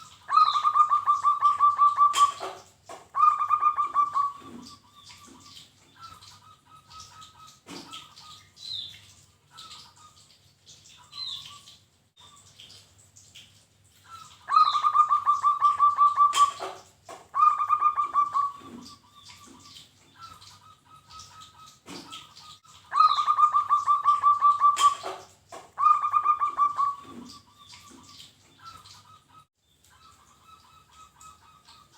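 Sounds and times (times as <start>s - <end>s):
dove cooing: 0.0s - 2.6s, 3.2s - 7.3s, 14.1s - 22.2s, 22.9s - 29.4s.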